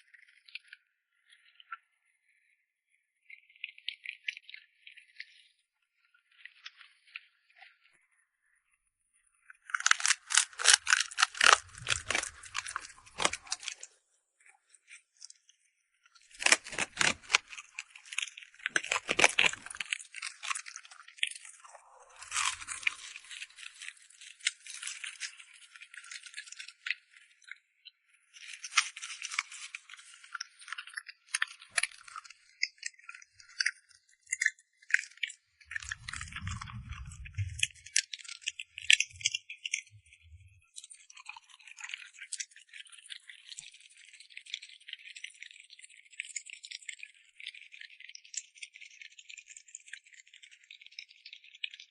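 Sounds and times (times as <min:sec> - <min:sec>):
dog chewing and crunching food: 0:09.7 - 0:13.9, 0:16.3 - 0:27.0, 0:28.4 - 0:49.0.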